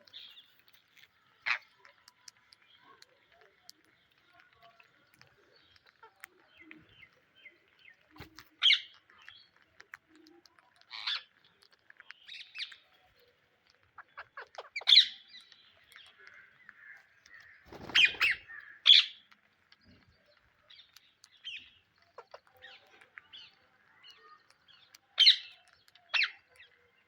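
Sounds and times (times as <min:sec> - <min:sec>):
parakeets calling: 0:17.4 - 0:19.2.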